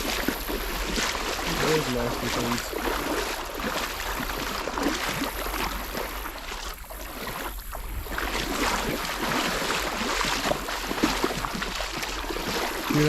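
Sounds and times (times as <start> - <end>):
river water splashing: 0.0 - 13.0
wind on microphone: 0.0 - 13.0.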